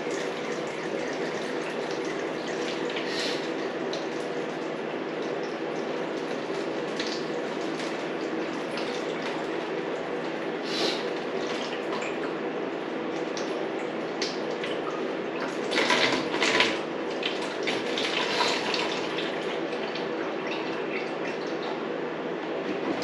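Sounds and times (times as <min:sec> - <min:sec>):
liquid dripping into container: 0:00.0 - 0:10.6.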